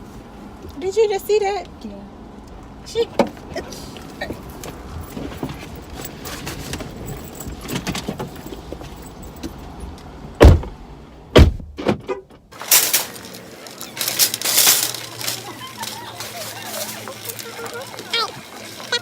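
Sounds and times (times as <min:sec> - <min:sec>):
car doors shutting: 0:10.4 - 0:12.5
light clicks and rustling: 0:12.6 - 0:19.0.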